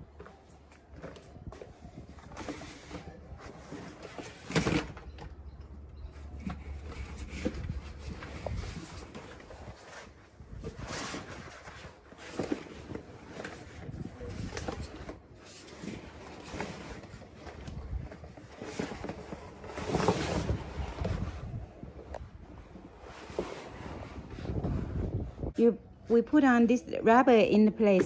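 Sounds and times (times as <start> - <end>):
rubber liner rustling and scraping: 0.1 - 25.6.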